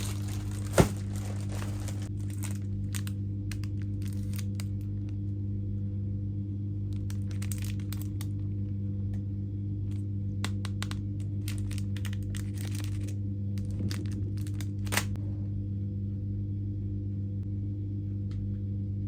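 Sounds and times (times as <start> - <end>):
crinkling and crackling: 0.0 - 5.3, 6.9 - 9.2, 9.8 - 15.3
low electrical hum: 0.0 - 19.0.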